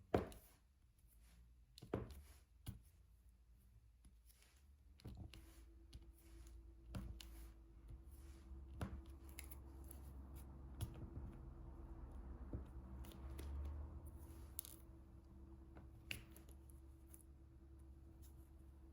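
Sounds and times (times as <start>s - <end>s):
pen clicking and tapping: 8.7s - 11.4s.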